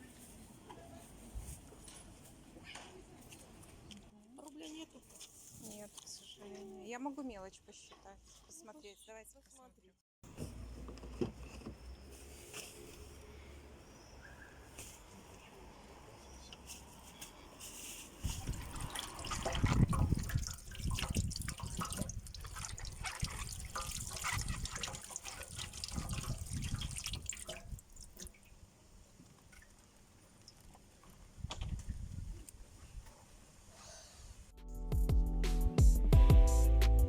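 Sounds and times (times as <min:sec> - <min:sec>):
water splashing and dripping: 0:18.2 - 0:28.7.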